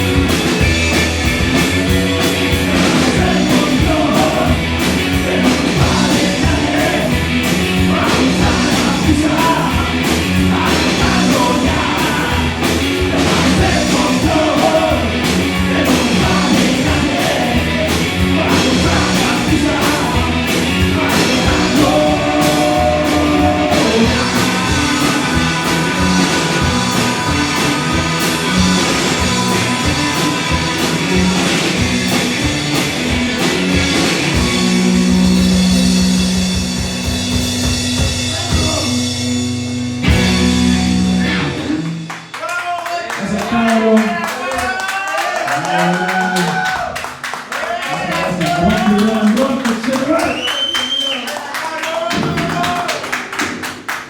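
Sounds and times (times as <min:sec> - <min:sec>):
bass guitar: 0:00.0 - 0:42.4
electric guitars: 0:00.0 - 0:42.4
drum kit: 0:00.0 - 0:44.8, 0:51.8 - 0:54.0.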